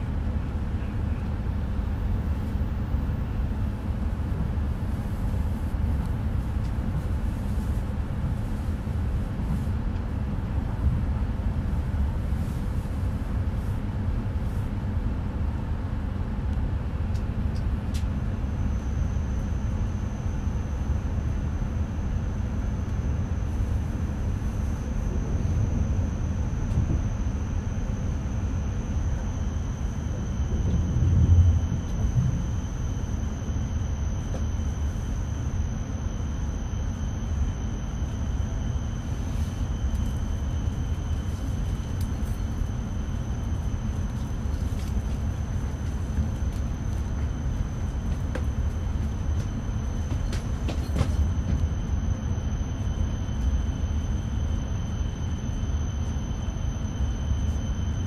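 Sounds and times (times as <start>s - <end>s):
faint high whine: 18.5s - 58.0s
train cabin rumble: 23.6s - 28.0s, 29.1s - 33.6s, 39.0s - 53.3s.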